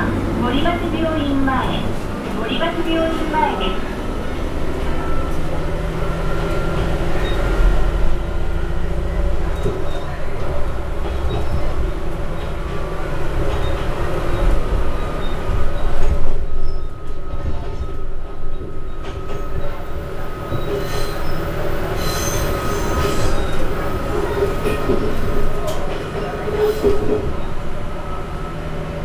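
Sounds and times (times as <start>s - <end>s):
railcar engine and wheel rumble: 0.0s - 29.0s
thin wheel squeal: 22.0s - 23.7s.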